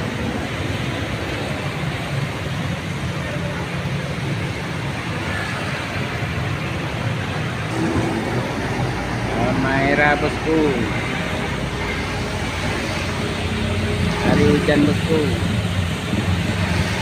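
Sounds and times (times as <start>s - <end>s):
vehicle engine rumbling: 0.0s - 17.0s
rain falling: 14.9s - 17.0s.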